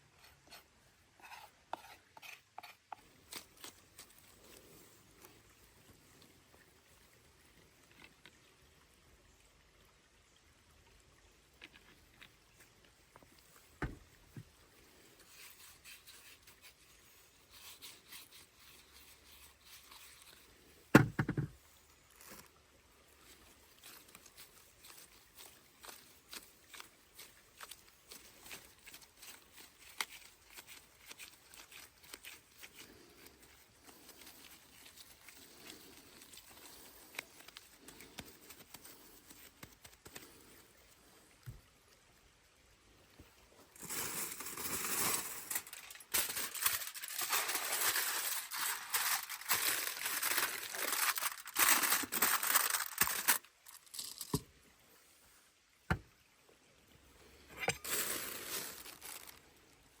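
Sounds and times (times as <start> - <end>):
crinkling rustling handling noise: 11.6 - 40.7, 43.6 - 54.5, 57.4 - 60.0.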